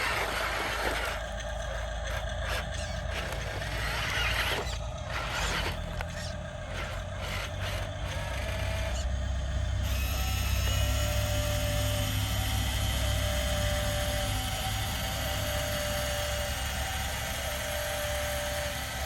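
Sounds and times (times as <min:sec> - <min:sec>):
thin whine: 0:00.0 - 0:11.7
model engine-like rumble: 0:00.0 - 0:19.0
small electric motors whirring: 0:00.0 - 0:19.0.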